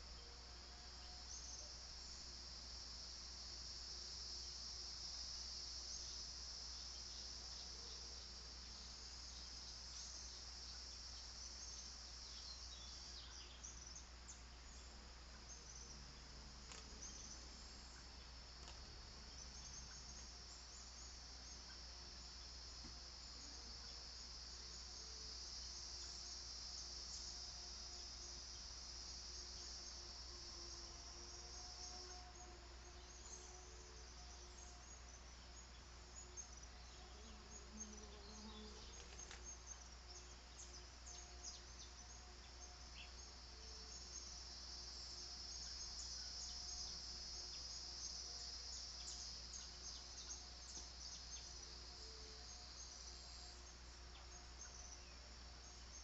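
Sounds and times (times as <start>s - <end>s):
insects trilling: 0.0s - 56.0s
low steady hum: 0.0s - 56.0s.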